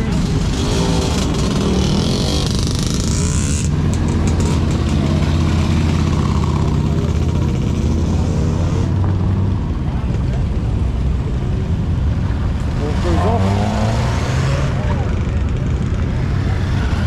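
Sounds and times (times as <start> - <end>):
car engine revving: 12.5 - 17.0.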